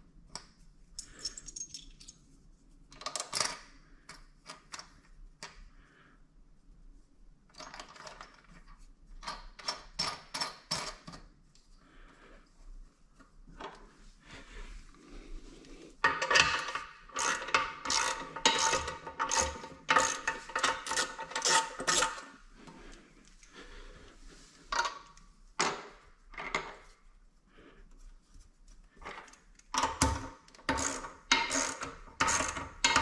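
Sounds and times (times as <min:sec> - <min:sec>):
metal nuts and washers clinking: 0:01.0 - 0:02.2, 0:16.0 - 0:22.2.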